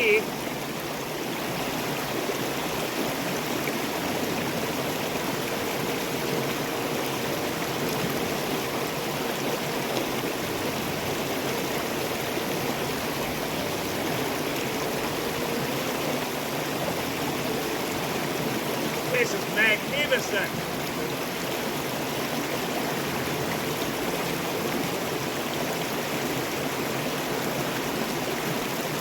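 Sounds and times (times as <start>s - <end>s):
creek running over rocks: 0.0s - 29.0s.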